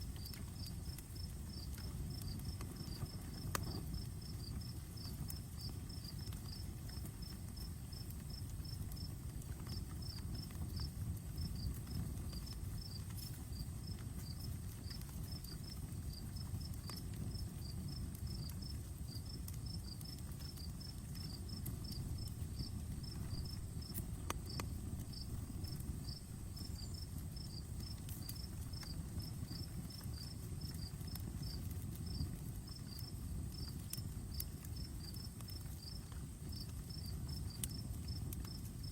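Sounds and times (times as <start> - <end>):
insect chirping: 0.0 - 9.2, 17.3 - 38.6
campfire crackling: 0.0 - 38.9.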